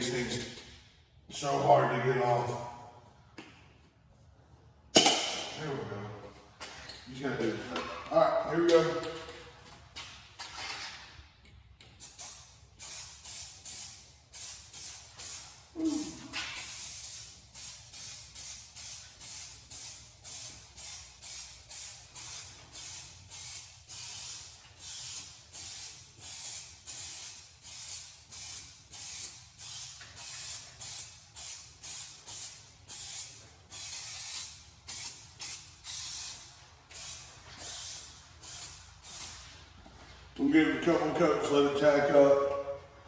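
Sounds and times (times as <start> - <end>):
aerosol spray can hissing: 12.0 - 39.4.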